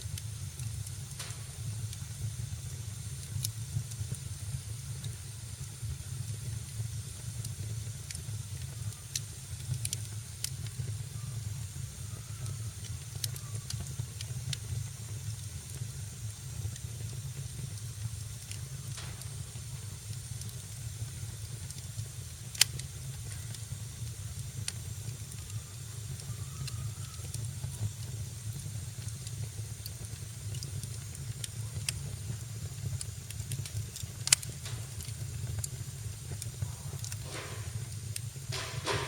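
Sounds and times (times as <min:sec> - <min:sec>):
fire crackles: 0:00.0 - 0:39.0
wood fire rumble and hiss: 0:00.0 - 0:39.0
sharp loud pops: 0:01.2 - 0:01.8, 0:37.0 - 0:39.0.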